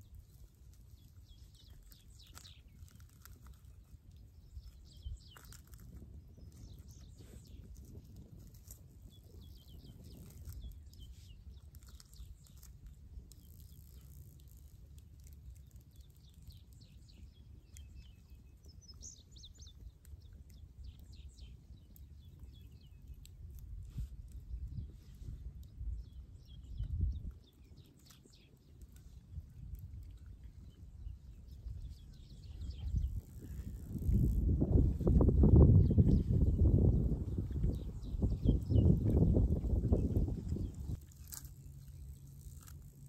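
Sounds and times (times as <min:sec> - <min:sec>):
wild birds chirping: 0:00.0 - 0:07.7, 0:25.9 - 0:29.2, 0:30.3 - 0:41.0.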